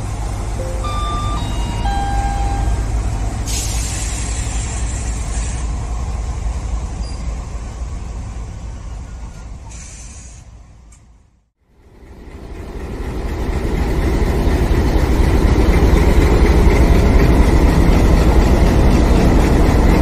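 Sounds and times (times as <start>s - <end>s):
train wheels rumbling on track: 0.0s - 20.0s
hiss: 3.4s - 6.0s, 9.6s - 10.6s.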